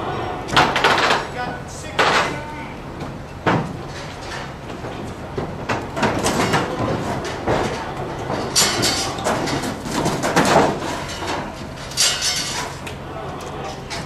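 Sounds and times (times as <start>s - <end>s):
knocks and thuds on roof: 4.7s - 10.8s.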